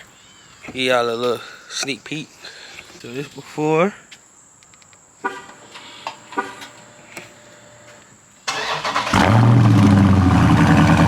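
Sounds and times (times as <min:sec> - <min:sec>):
car engine idling loudly: 0:09.2 - 0:11.0.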